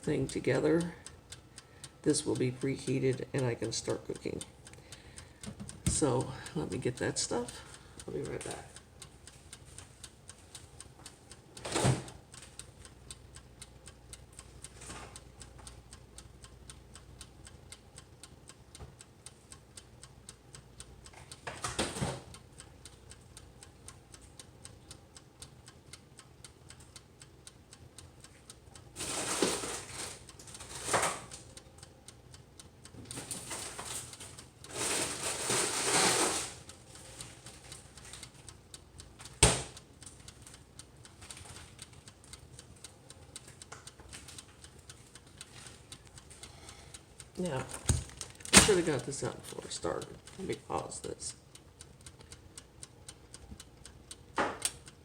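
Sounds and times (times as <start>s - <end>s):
wind-up timer ticking: 0.0s - 55.0s.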